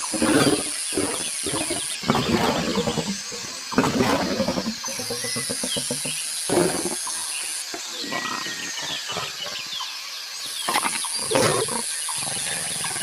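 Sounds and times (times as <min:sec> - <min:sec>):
lion growling: 0:00.0 - 0:07.0, 0:10.7 - 0:13.0.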